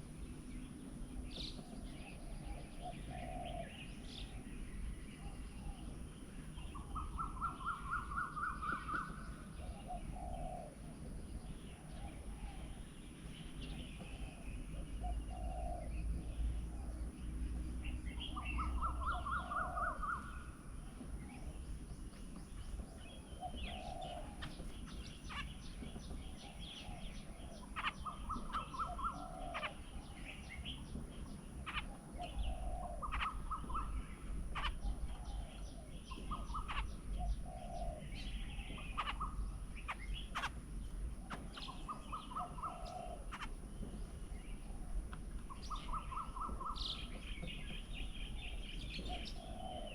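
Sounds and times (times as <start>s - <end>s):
steady low rumble: 0.0s - 49.9s
sharp bird chirps: 0.4s - 10.8s, 17.3s - 20.6s, 23.2s - 44.8s, 45.4s - 49.9s
low bird call: 1.3s - 17.1s, 17.9s - 21.6s, 22.9s - 31.0s, 31.6s - 40.6s, 41.2s - 49.9s.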